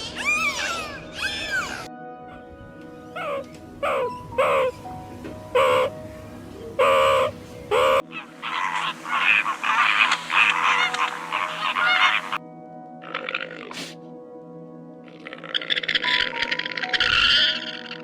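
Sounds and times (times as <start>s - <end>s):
chorus of overlapping animal calls: 3.1s - 4.8s, 5.5s - 6.0s, 6.6s - 12.4s, 15.0s - 18.0s.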